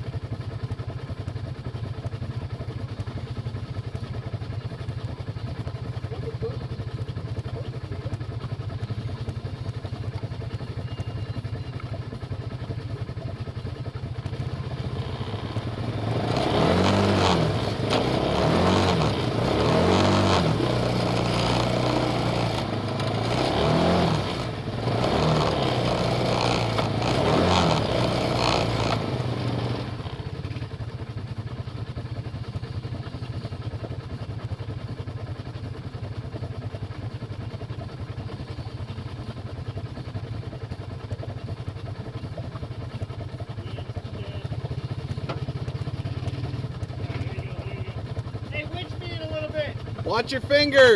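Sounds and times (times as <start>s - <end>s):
off-road vehicle engine revving: 14.2s - 30.6s, 41.2s - 50.9s.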